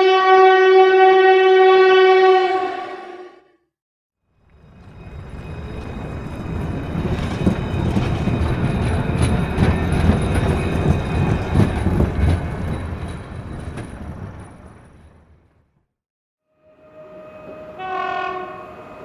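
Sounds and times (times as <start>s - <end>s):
train rumbling past: 4.4s - 15.8s, 16.6s - 19.0s
wheels clattering over rail joints: 4.5s - 15.7s.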